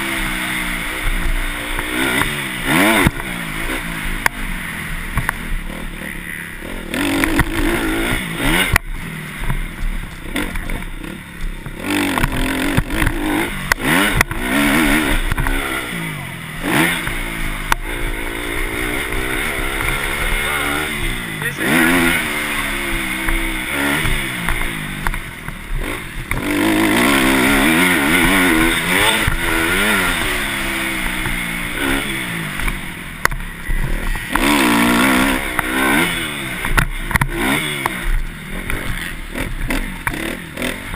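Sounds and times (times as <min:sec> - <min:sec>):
dirt bike engines revving: 0:00.0 - 0:40.9.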